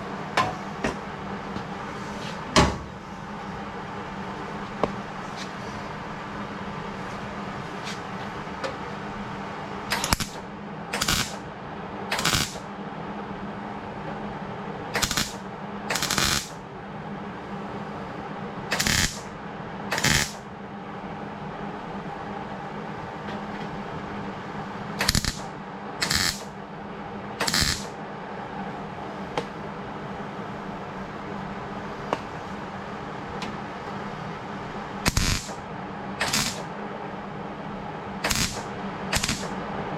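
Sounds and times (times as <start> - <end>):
welder low hum: 2.8 - 39.9
welder bursts: 9.9 - 11.4, 12.1 - 12.6, 15.0 - 16.6, 18.7 - 19.3, 19.9 - 20.4, 25.0 - 26.5, 27.4 - 27.9, 35.0 - 35.6, 36.2 - 36.7, 38.2 - 39.6.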